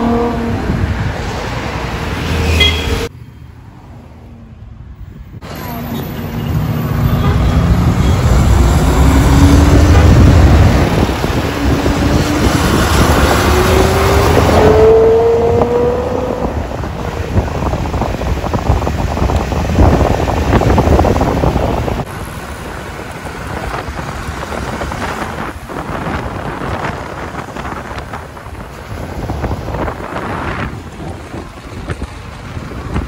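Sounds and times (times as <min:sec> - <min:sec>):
wind noise on microphone: 0:00.0 - 0:02.0, 0:07.2 - 0:33.0
road rumble: 0:00.0 - 0:33.0
car engine accelerating: 0:07.6 - 0:22.1.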